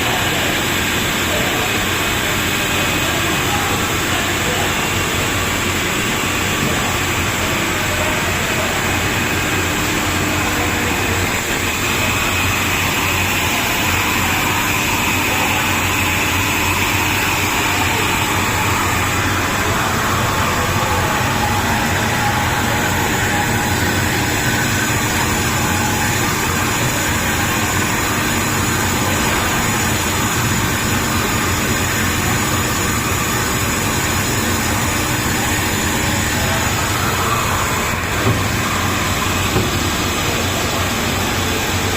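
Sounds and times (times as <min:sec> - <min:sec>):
machine humming and hissing: 0:00.0 - 0:41.9.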